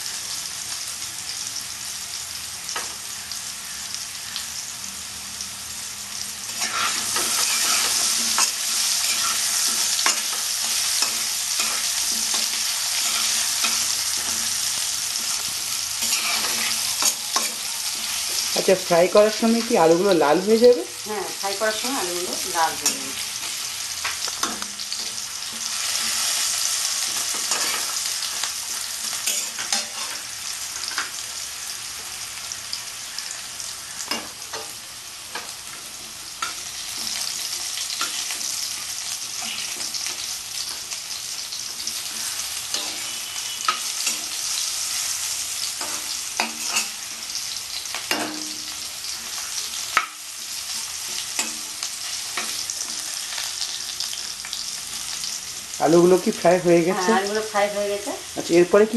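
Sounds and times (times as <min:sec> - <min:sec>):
potatoes sizzling in hot oil: 0:00.0 - 0:58.9
spatula scraping and clinking wok: 0:06.5 - 0:19.6, 0:22.0 - 0:31.2, 0:33.2 - 0:54.2.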